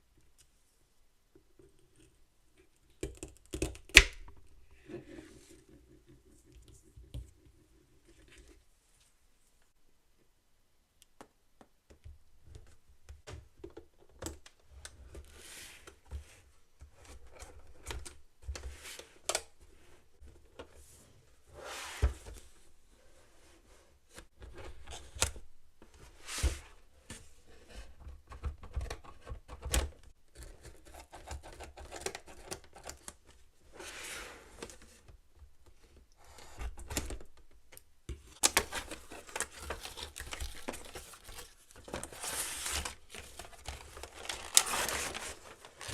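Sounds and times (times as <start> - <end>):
packaging rustling and tearing: 38.4 - 45.9.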